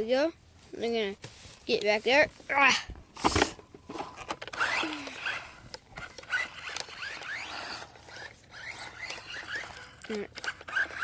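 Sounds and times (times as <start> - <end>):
toy truck motor whining: 3.2 - 11.0.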